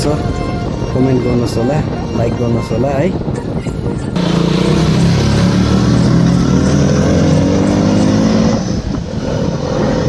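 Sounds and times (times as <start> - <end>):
motorcycle engine pulling under load: 4.2 - 10.0.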